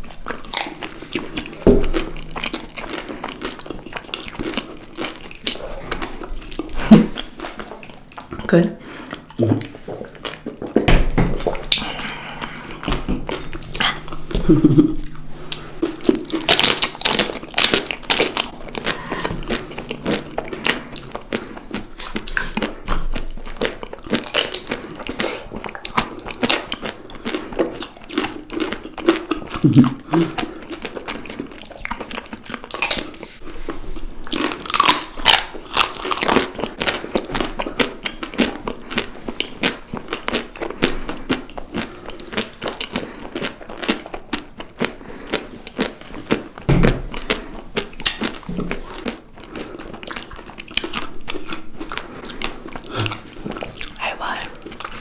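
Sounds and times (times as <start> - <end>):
person chewing crunchy snacks: 0.0 - 55.0.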